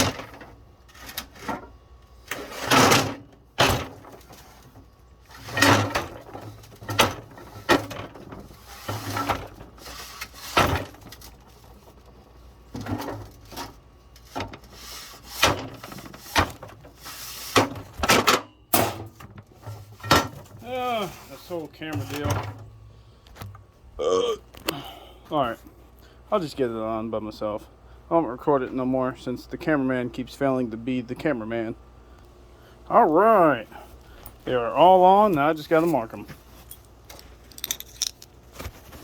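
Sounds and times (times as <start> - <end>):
metal parts clunking and scraping: 0.0 - 23.6, 35.2 - 39.0.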